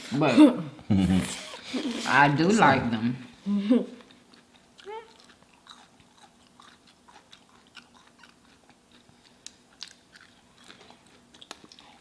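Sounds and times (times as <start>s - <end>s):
person chewing crunchy food: 4.0s - 12.0s.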